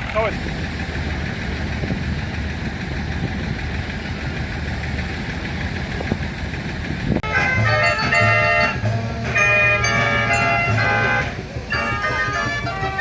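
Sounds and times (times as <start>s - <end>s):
tractor engine idling: 0.0s - 13.0s
guitar music: 7.2s - 13.0s.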